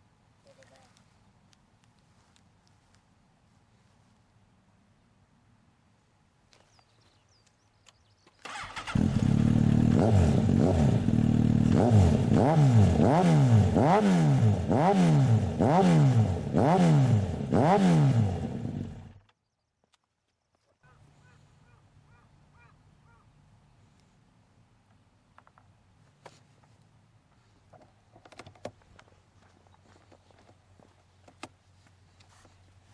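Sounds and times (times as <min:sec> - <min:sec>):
motorcycle engine starting: 0:08.3 - 0:19.4
motorcycle engine revving: 0:08.4 - 0:19.2.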